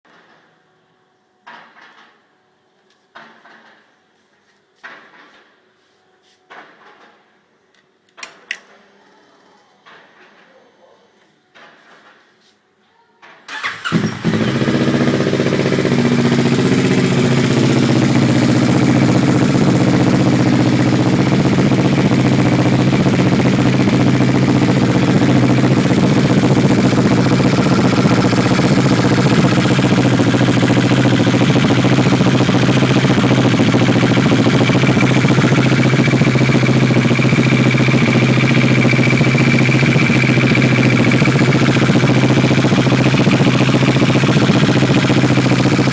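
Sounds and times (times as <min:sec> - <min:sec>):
motorcycle engine starting and idling: 0:13.5 - 0:45.9.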